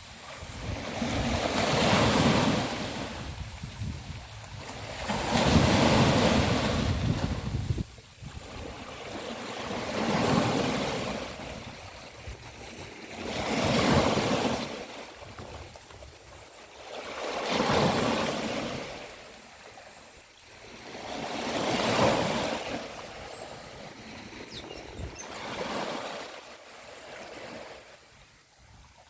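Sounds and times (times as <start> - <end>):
sea waves breaking on beach: 0.0 - 29.0.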